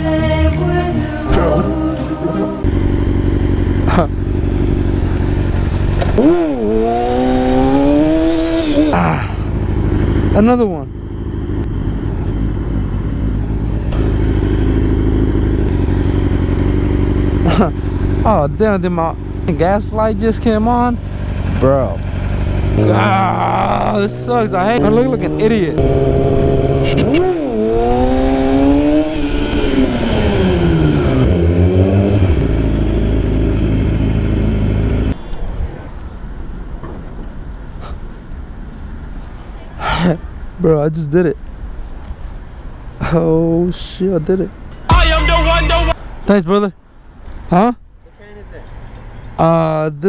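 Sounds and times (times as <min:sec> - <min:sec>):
outdoor background noise: 0:00.0 - 0:50.0
motorcycle engine running: 0:01.3 - 0:35.2.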